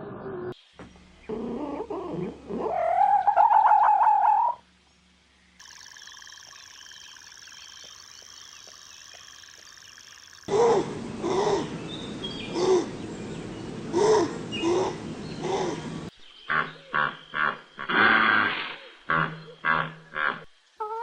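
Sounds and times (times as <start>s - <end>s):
high-pitched chorus of chirps: 5.6s - 10.6s.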